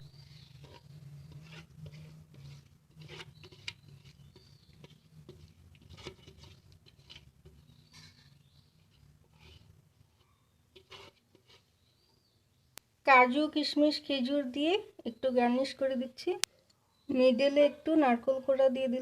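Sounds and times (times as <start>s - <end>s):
spoon scraping a bowl: 0.0s - 11.8s.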